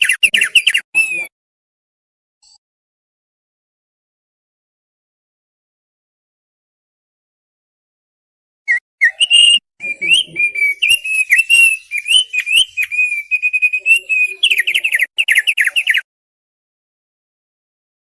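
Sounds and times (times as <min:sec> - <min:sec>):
bird singing whistled notes: 0:00.0 - 0:01.3, 0:08.7 - 0:16.1.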